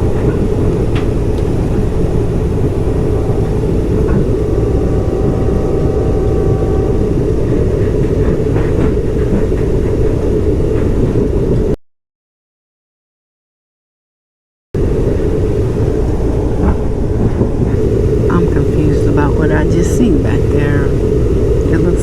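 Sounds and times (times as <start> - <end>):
faint high whine: 0.0 - 9.2, 14.8 - 22.0
train rumble from inside car: 0.0 - 11.8, 14.8 - 22.0.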